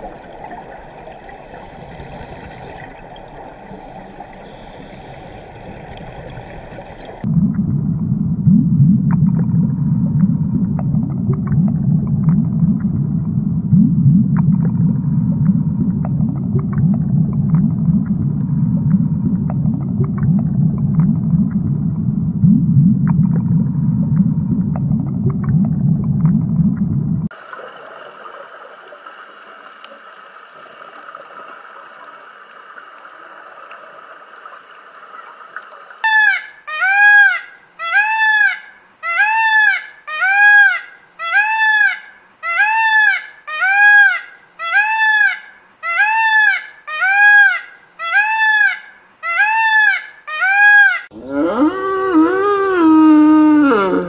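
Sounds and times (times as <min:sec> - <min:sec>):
low underwater rumble: 0:00.0 - 0:27.3
peacock calling: 0:36.0 - 0:54.0.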